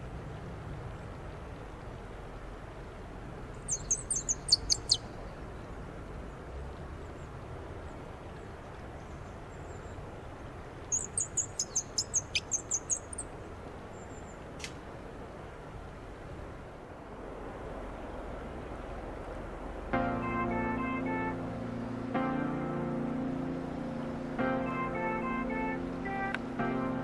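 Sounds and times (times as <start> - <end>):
wooden bird call squeaking: 3.7 - 5.1, 10.9 - 13.2.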